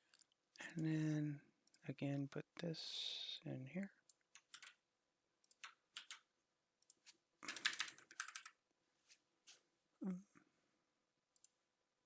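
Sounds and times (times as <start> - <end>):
faint typing on a keyboard: 3.8 - 4.8, 5.4 - 8.6.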